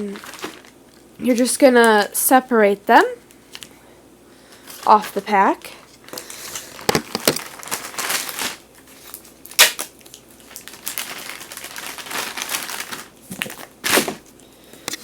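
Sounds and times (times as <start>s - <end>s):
plastic wrappers crinkling and tearing: 0.0s - 2.1s, 4.6s - 15.0s.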